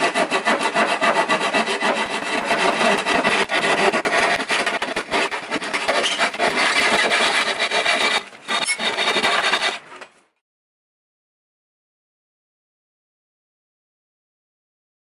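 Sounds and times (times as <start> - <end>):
hand tool rasping wood: 0.1 - 9.9.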